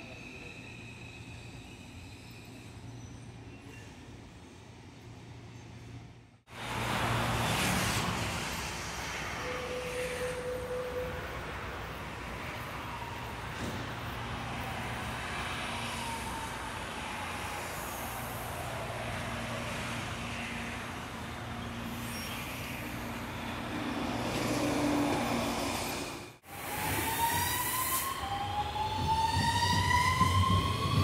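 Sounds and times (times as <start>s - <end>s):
electric train running with low hum: 13.6s - 31.0s.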